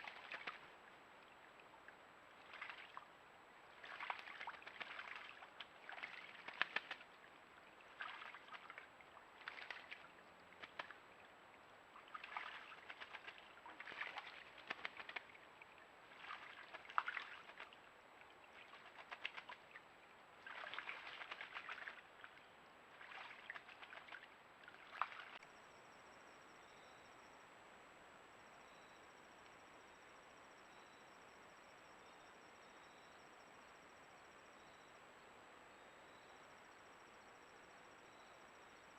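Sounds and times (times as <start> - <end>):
splashing in shallow water: 0.0 - 25.4
faint steady hiss: 0.0 - 38.9
insect chirps: 23.0 - 38.9.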